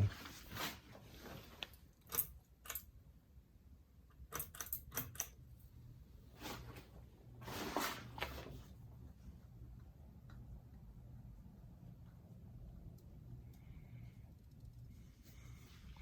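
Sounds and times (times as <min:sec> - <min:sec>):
ceiling fan motor humming: 0:05.4 - 0:16.0.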